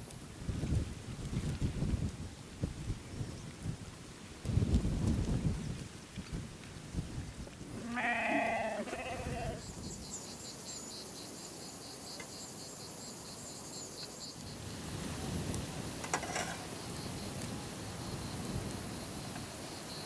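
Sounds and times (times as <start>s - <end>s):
high-pitched hiss with fast ticking: 0.0s - 0.5s, 9.6s - 20.0s
farm animal bleating: 7.8s - 9.6s.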